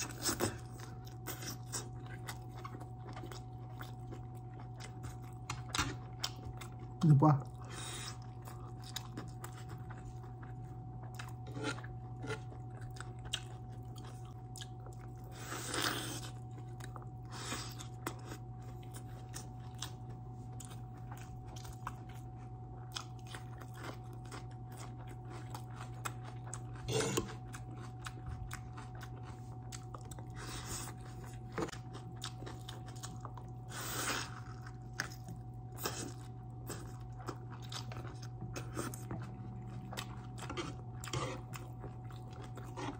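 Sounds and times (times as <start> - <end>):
person chewing food: 0.0 - 42.9
low hum: 36.4 - 42.7.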